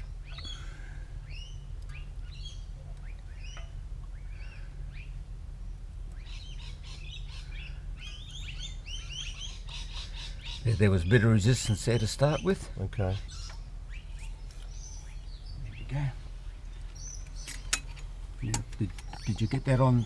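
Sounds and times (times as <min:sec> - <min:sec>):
small birds chirping: 0:00.0 - 0:20.0
steady low hum: 0:00.0 - 0:20.0.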